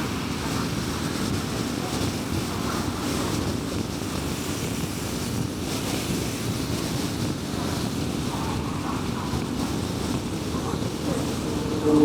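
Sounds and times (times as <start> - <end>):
tyre and road noise: 7.2 - 12.0
low engine hum: 7.4 - 12.0.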